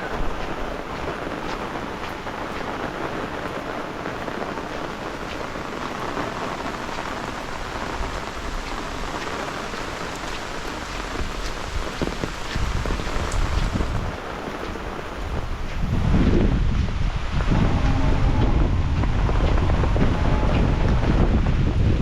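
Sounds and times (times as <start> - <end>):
heavy rain falling: 0.0 - 22.0
wind gusts on microphone: 0.0 - 22.0.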